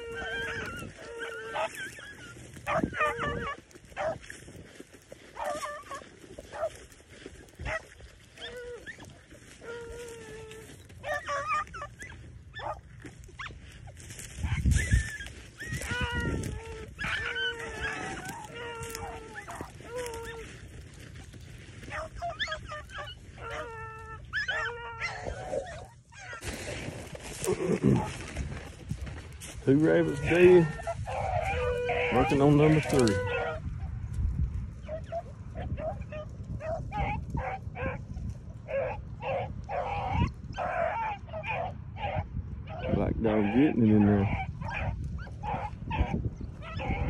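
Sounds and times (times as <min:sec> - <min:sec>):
short bending yelps: 0:00.0 - 0:04.2, 0:14.4 - 0:20.4, 0:21.9 - 0:26.4, 0:29.7 - 0:33.6, 0:38.7 - 0:43.6
dogs baying: 0:00.0 - 0:47.0.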